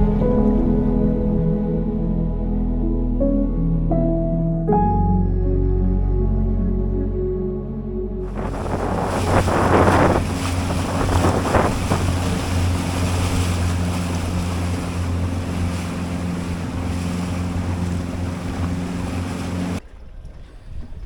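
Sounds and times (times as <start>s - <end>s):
outboard motor humming: 8.2s - 20.4s
wind buffeting microphone: 8.2s - 21.0s
water splashing against hull: 8.3s - 21.0s.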